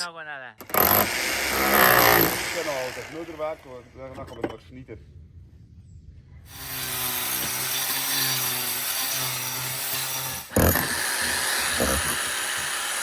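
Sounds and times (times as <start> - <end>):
motor hum: 0.6 - 3.6, 10.4 - 13.0
power tool grinding: 0.6 - 4.5, 6.5 - 13.0.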